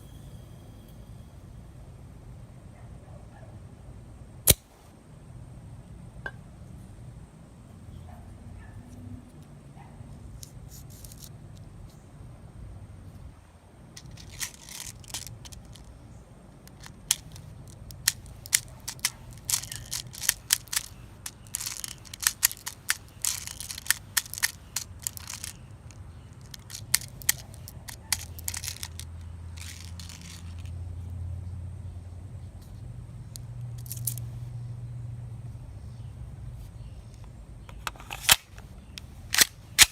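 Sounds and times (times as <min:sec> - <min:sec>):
airsoft guns clicking: 0:14.0 - 0:15.9, 0:16.7 - 0:30.7, 0:37.7 - 0:39.9.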